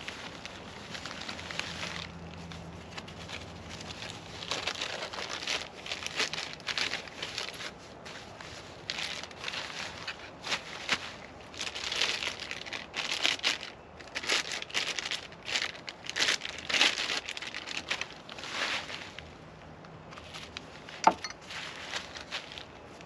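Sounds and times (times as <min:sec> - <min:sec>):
packaging crinkling and rustling: 0:00.0 - 0:19.3, 0:20.1 - 0:23.0.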